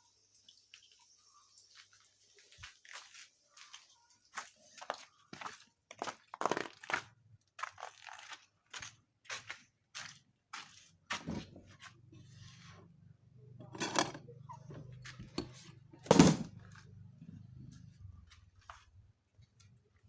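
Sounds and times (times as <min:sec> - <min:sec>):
utensils knocking and scraping: 0:13.6 - 0:16.5.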